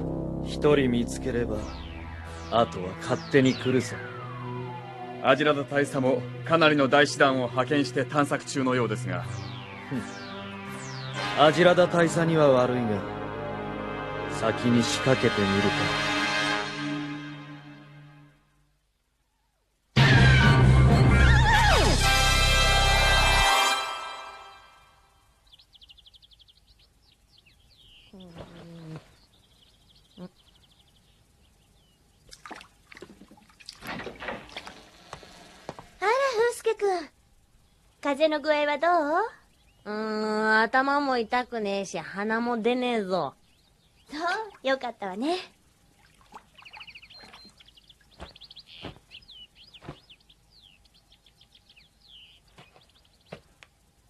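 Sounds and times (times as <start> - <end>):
small birds chirping: 25.3 - 33.8, 34.4 - 54.0.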